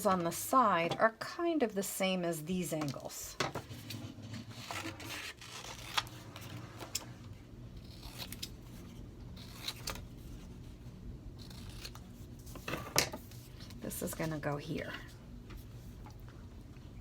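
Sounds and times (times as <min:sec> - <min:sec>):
faint steady hum: 0:00.0 - 0:17.0
scissors snipping paper: 0:07.8 - 0:08.6, 0:11.4 - 0:12.0.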